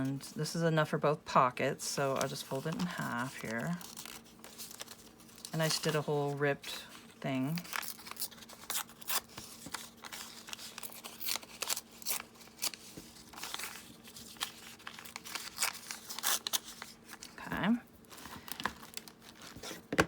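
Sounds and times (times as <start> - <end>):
paper crinkling: 2.1 - 20.0
paper ripping: 2.2 - 6.0, 7.5 - 17.4.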